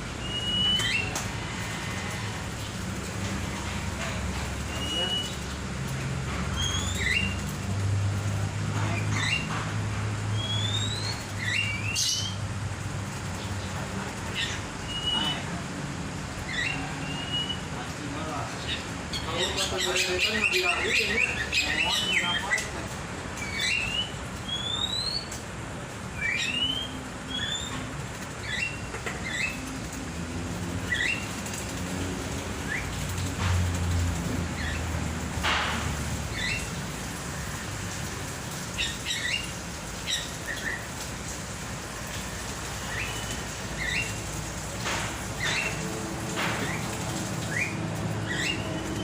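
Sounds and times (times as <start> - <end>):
cage birds whistling: 0.1 - 2.4, 4.6 - 5.6, 6.4 - 7.5, 8.8 - 9.6, 10.2 - 12.5, 14.3 - 15.7, 16.4 - 22.7, 23.4 - 25.4, 26.1 - 29.8, 30.6 - 31.5, 32.6 - 33.1, 36.3 - 36.8, 38.7 - 40.9, 42.8 - 44.3, 45.4 - 45.9, 46.5 - 49.0
bird whistling calls: 0.2 - 1.2, 4.7 - 5.4, 10.3 - 12.4, 14.8 - 15.4, 16.5 - 17.7, 23.4 - 25.3, 26.2 - 29.6
wings flapping: 28.1 - 41.1.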